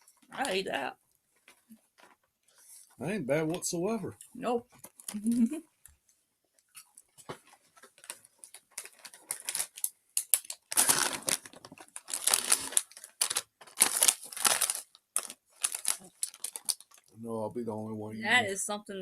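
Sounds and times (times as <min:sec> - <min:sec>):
plastic packaging crinkling: 0:06.7 - 0:17.2.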